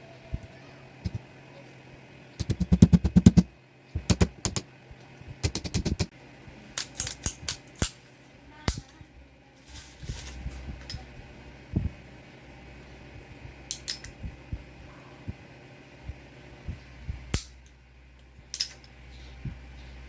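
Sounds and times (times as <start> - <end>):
pistol parts clicking and rattling: 6.8 - 8.0, 13.7 - 14.1, 18.5 - 18.9.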